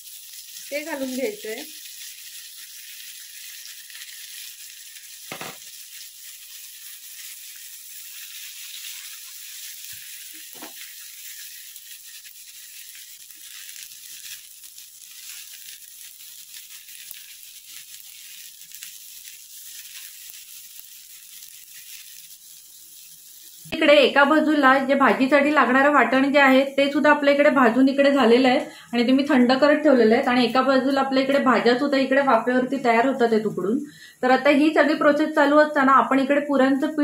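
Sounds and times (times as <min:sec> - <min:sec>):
spatula stirring in pan: 0:00.0 - 0:23.8
vegetables sizzling in oil: 0:00.0 - 0:37.0.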